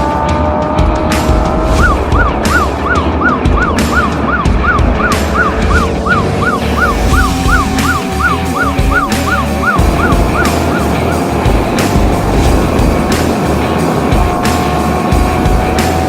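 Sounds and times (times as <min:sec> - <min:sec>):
motorcycle engine rumble: 0:00.0 - 0:16.0
wind noise: 0:00.8 - 0:16.0
siren yelping: 0:01.7 - 0:12.4.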